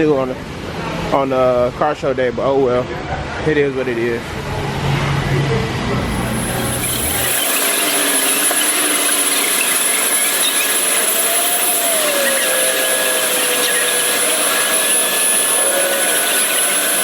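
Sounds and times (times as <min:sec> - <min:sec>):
car wash equipment hissing: 0:05.9 - 0:17.0
faint wavering tone: 0:06.3 - 0:17.0.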